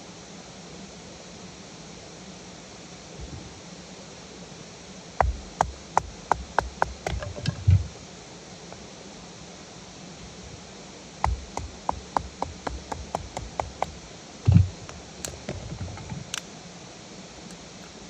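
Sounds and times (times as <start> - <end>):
steady rain hiss: 0.0 - 18.0
dull thump: 5.2 - 8.0, 11.2 - 16.4.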